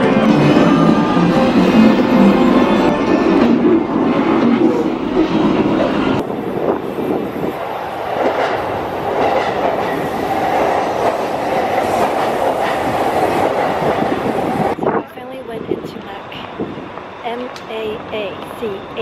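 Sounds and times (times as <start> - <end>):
train wheels running on rails: 0.0 - 19.0.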